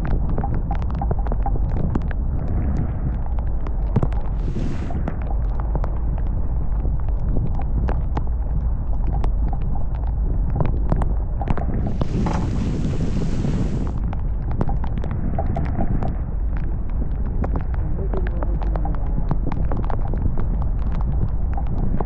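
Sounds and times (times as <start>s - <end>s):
wind buffeting microphone: 0.0s - 22.0s
rushing hiss: 11.9s - 14.0s.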